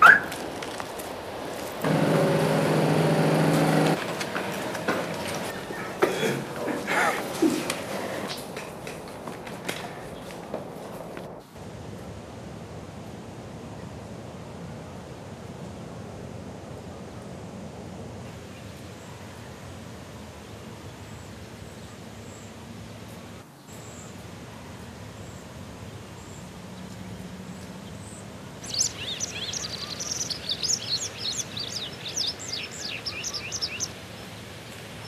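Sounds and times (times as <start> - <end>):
outdoor ambience: 0.0 - 35.0
small bird twittering: 28.6 - 33.9.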